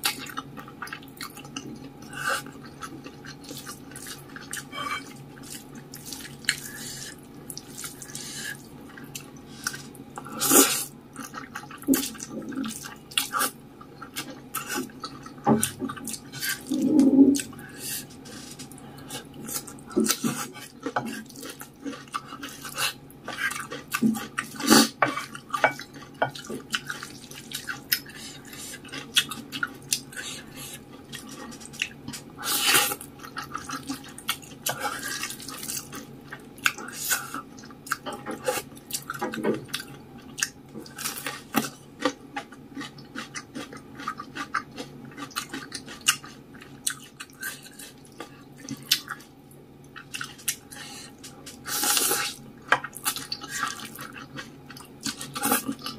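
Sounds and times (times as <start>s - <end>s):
chewing and slurping noodles: 0.0s - 49.3s, 49.9s - 55.9s
cutlery clinking on a dish: 4.7s - 5.1s.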